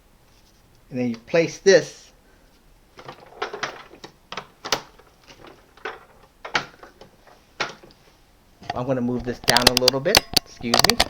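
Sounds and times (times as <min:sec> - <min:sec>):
plastic clicks and knocks: 0:03.0 - 0:08.0, 0:08.6 - 0:11.0.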